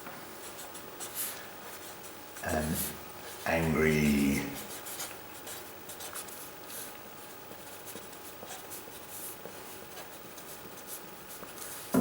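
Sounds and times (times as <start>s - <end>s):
pen scratching on paper: 4.5s - 11.8s.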